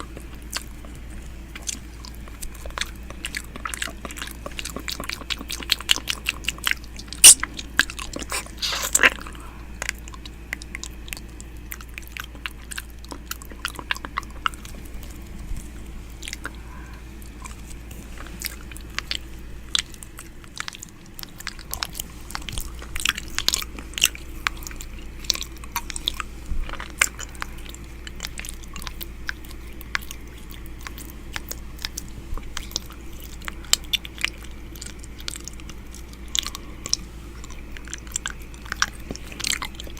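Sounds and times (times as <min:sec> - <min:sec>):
steady low hum: 0:00.0 - 0:39.9
wet mouth clicks and smacks: 0:07.2 - 0:09.2.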